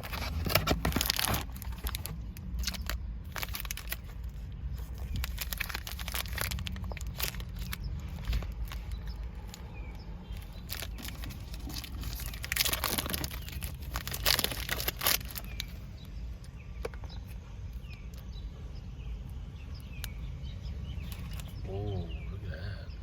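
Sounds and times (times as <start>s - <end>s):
wrapper crinkling and tearing: 0.0s - 9.7s, 10.3s - 15.8s, 21.1s - 21.6s.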